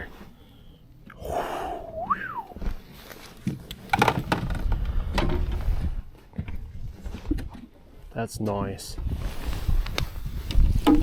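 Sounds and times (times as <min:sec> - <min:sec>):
fish knocking and clicking: 0:10.5 - 0:11.0.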